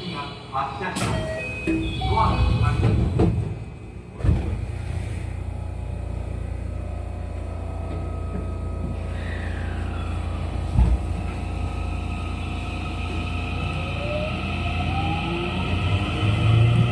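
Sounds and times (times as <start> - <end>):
train interior low hum: 0.0 - 16.9
train motors whining: 4.4 - 16.9.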